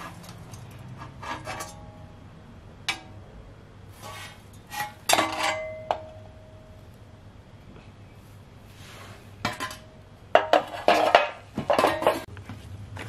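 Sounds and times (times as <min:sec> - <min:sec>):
metal clinks and clanks: 0:00.0 - 0:02.0.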